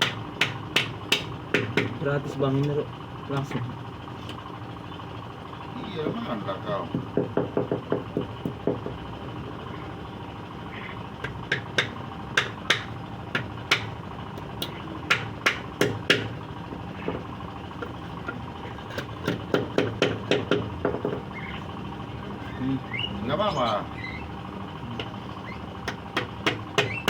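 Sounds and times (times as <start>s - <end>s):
hammer striking wood: 0.0s - 2.0s, 11.5s - 13.9s, 14.6s - 16.3s, 19.3s - 21.2s, 25.9s - 27.0s.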